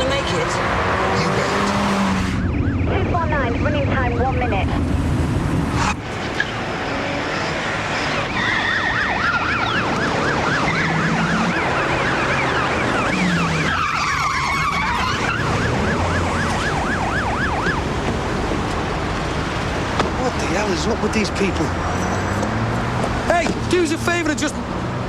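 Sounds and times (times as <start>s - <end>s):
police siren yelp: 0.0s - 4.8s, 6.4s - 18.0s
car engines rumbling: 0.0s - 25.0s.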